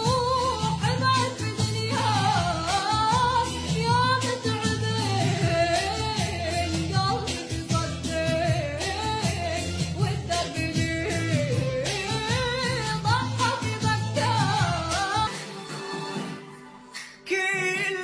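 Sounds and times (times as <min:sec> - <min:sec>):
instrumental backing with beat: 0:00.0 - 0:18.0
person singing: 0:17.0 - 0:18.0.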